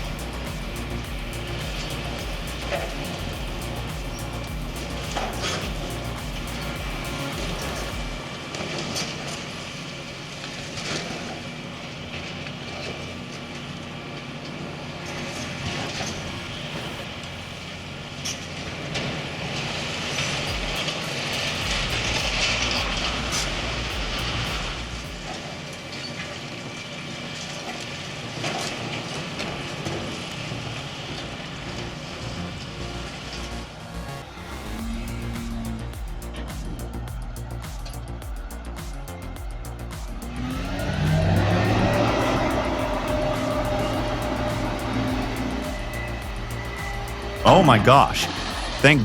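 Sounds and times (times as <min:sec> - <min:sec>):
diesel engine running: 0:00.0 - 0:08.4, 0:31.4 - 0:49.0
loud rushing noise: 0:00.0 - 0:09.4, 0:19.4 - 0:25.8, 0:31.3 - 0:49.0.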